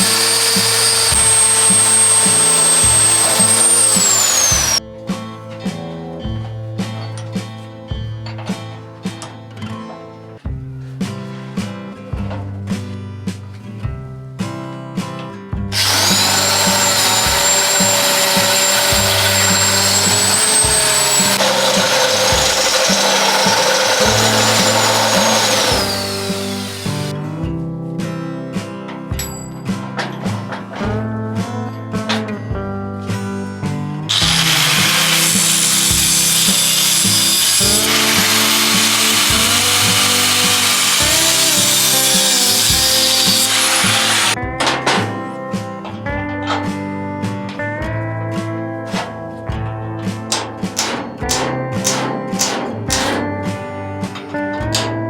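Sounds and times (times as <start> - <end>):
power tool whining on metal: 0.0 - 4.8, 15.7 - 27.1, 34.1 - 44.4
music with plucked bass line: 0.0 - 55.0.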